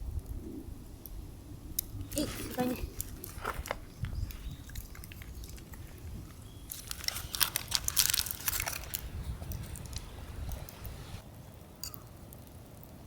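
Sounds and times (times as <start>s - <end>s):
crinkling handling noise: 2.0s - 11.2s.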